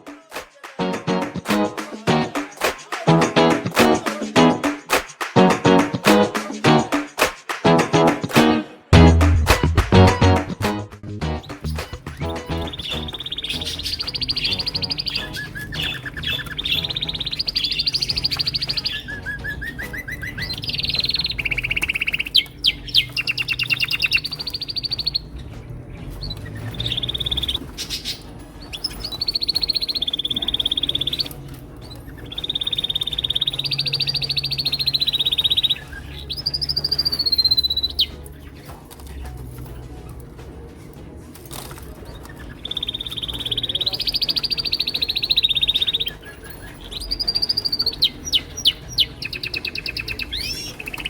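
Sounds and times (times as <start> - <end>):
canaries singing trills: 11.4 - 38.7, 41.9 - 51.0.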